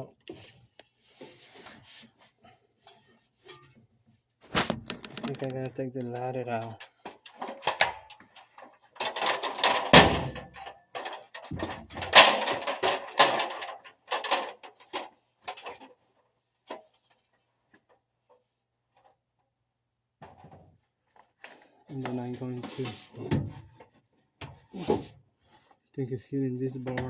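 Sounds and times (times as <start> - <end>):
sheet metal clanking and scraping: 6.6 - 15.9.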